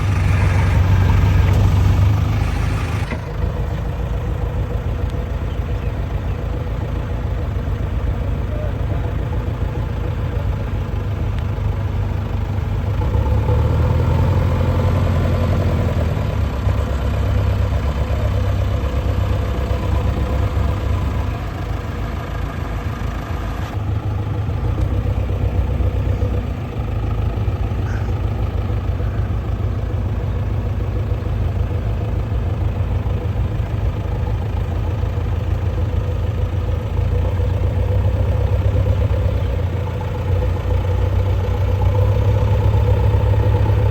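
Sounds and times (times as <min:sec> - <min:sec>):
diesel engine rumbling: 0:00.0 - 0:43.9.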